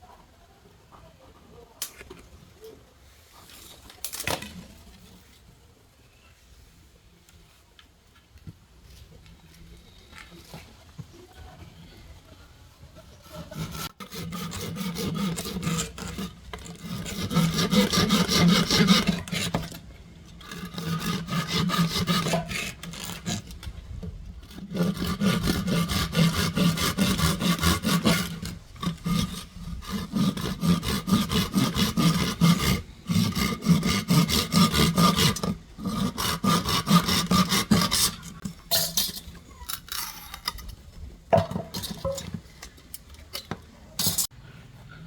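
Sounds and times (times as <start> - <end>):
hand saw rasping through bamboo: 13.2 - 19.8, 20.4 - 23.6, 24.4 - 38.6.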